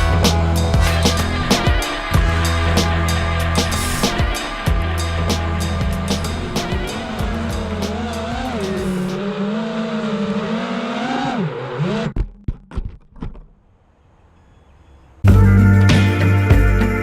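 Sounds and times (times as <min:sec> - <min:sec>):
music: 0:00.0 - 0:09.2, 0:15.2 - 0:17.0.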